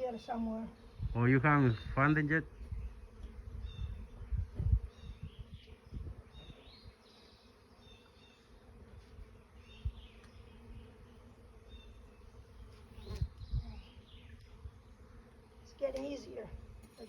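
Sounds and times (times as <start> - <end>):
bees buzzing: 0.0 - 17.0
low thumps: 4.3 - 5.4.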